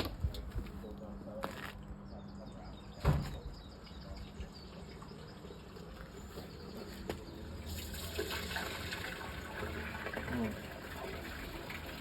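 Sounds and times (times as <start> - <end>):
water rushing down a drain: 7.3 - 12.0.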